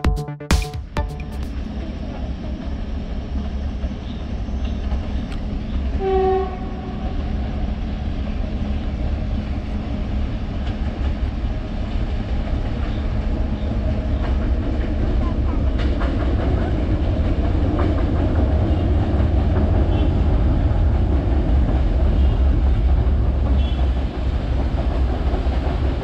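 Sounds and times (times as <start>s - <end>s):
diesel locomotive engine rumble: 1.5s - 26.0s
train horn blast: 6.0s - 7.2s, 23.6s - 24.0s.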